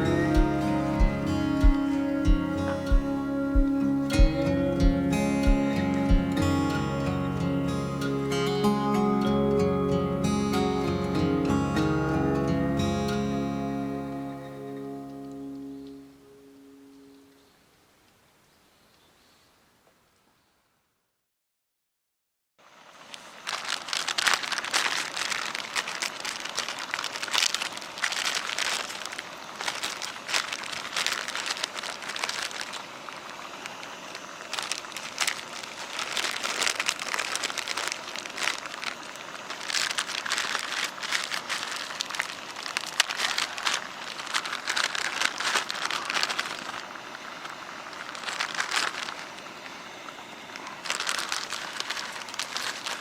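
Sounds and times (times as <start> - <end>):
material crinkling and rustling: 22.7 - 53.0.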